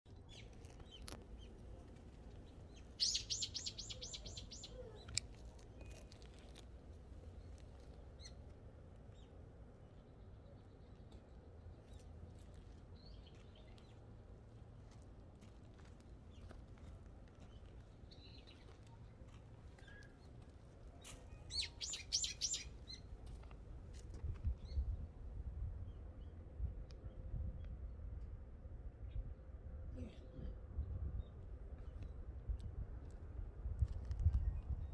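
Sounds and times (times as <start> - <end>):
small songbirds chirping: 0.1 - 8.4, 21.0 - 23.4.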